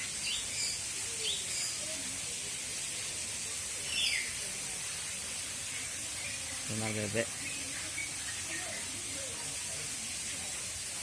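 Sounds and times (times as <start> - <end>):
birds chirping: 0.0 - 2.0, 3.4 - 9.7
steady hiss: 0.0 - 11.0.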